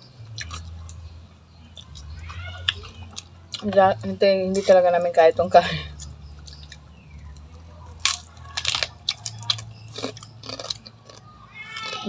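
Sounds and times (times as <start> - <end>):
person chewing crunchy food: 0.2 - 1.1, 1.7 - 3.7, 5.9 - 12.0.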